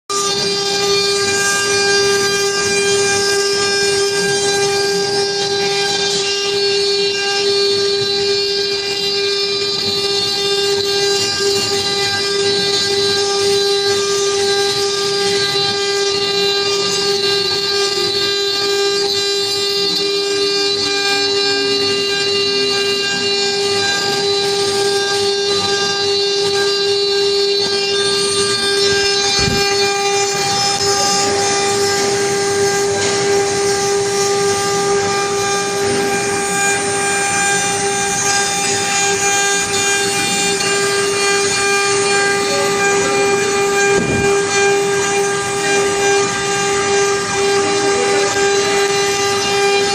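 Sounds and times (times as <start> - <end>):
rough wood cutting noise: 0.1 - 49.9
router spindle high whine: 0.1 - 49.9
lower tone falling in pitch: 28.5 - 32.7, 42.4 - 45.0.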